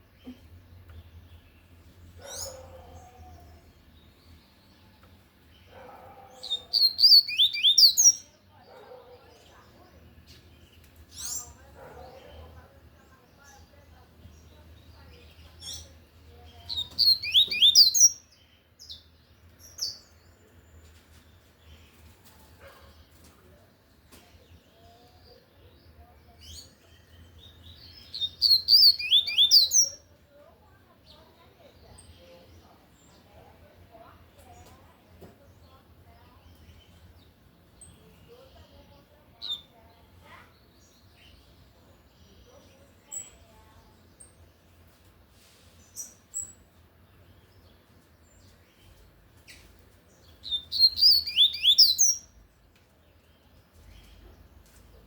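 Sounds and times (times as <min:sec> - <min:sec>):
faint bird chirps: 0:00.0 - 0:13.7, 0:14.3 - 0:23.3, 0:24.2 - 0:34.8, 0:45.6 - 0:52.4
bird singing whistled notes: 0:06.4 - 0:08.2, 0:16.7 - 0:20.1, 0:26.5 - 0:30.0, 0:50.4 - 0:52.4.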